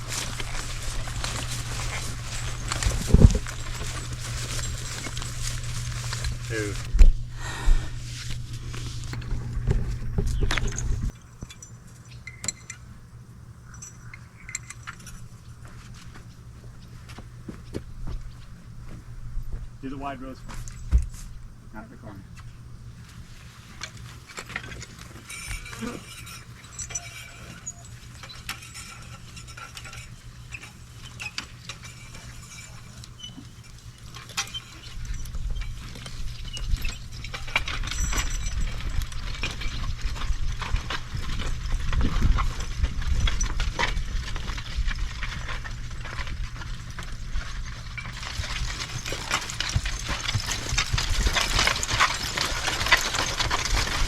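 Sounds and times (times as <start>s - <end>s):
harness and metal clinking: 0.0s - 7.2s, 7.8s - 12.9s, 13.6s - 19.0s, 22.5s - 54.0s
cultivator scraping soil: 0.0s - 11.1s, 23.0s - 54.0s
horse hoof steps: 0.0s - 11.5s, 14.5s - 21.6s, 22.4s - 54.0s.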